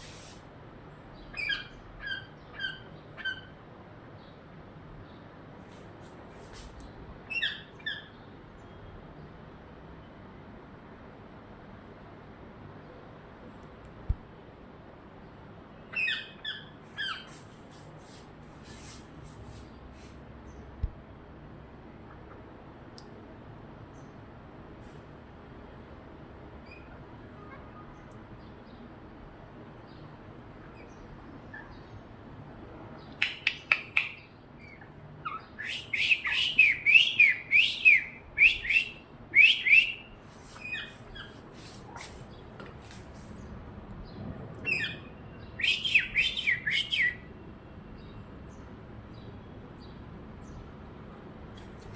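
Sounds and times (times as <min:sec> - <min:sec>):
parrot calling: 0:33.3 - 0:42.0, 0:44.7 - 0:47.2.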